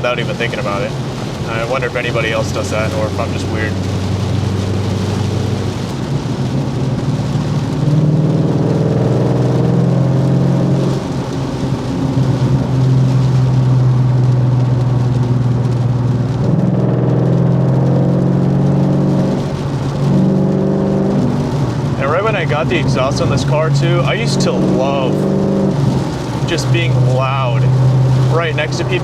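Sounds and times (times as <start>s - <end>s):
car engine droning from inside: 0.0s - 29.0s.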